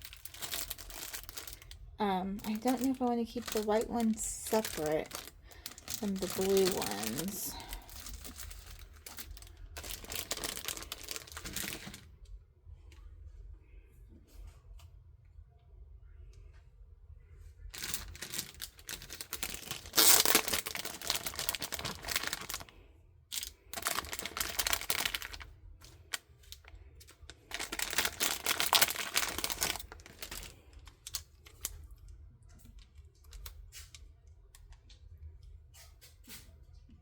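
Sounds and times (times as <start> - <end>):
plastic packaging crinkling: 0.0 - 12.1, 17.7 - 31.9.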